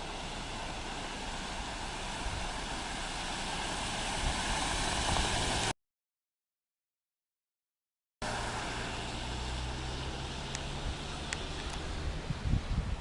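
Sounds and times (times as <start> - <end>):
fast-flowing floodwater rushing: 0.0 - 5.7, 8.2 - 13.0
wind buffeting microphone: 1.5 - 3.2, 3.8 - 5.7, 10.0 - 13.0.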